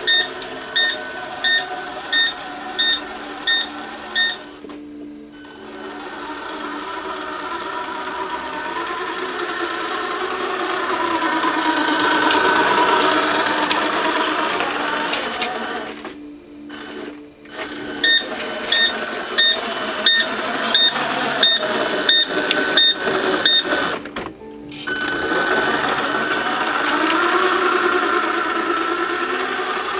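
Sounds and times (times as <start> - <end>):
short electronic beeps: 0.1 - 4.5, 18.0 - 23.8.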